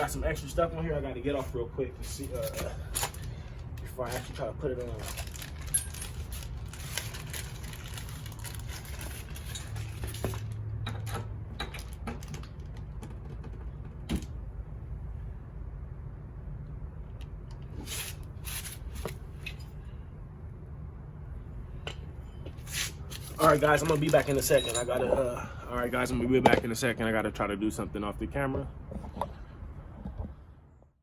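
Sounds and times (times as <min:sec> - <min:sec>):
steady low hum: 0:00.0 - 0:11.9, 0:12.6 - 0:24.0.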